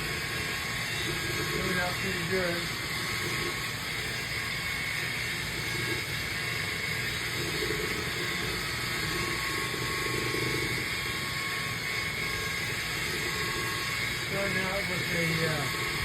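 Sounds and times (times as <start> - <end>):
electric buffer whirring: 0.0 - 16.0.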